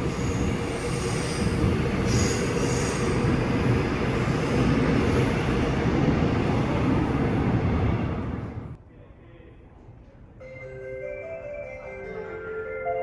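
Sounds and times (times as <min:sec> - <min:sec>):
electric train rumbling: 0:00.0 - 0:08.8.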